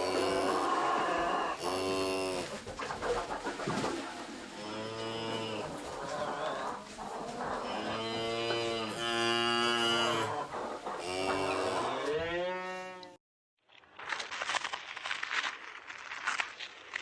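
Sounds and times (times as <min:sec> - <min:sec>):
cattle mooing: 0:07.6 - 0:10.3, 0:11.0 - 0:13.1.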